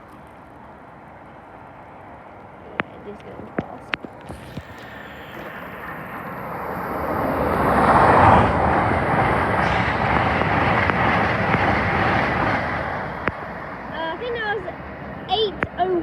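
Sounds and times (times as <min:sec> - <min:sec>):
train passing at speed: 0:00.0 - 0:16.0.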